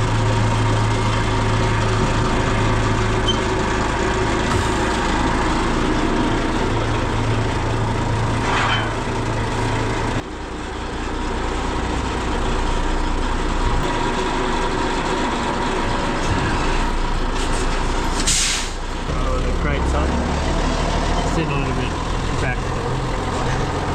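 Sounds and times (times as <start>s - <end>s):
heavy vehicle engine running: 0.0s - 23.9s
short hiss: 18.3s - 18.8s.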